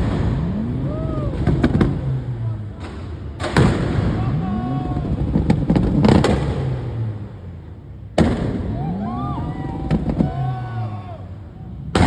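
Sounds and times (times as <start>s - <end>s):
exhaust pops and bangs: 0.0s - 7.2s, 8.2s - 8.9s, 9.6s - 10.6s
car exhaust revving: 0.0s - 12.0s.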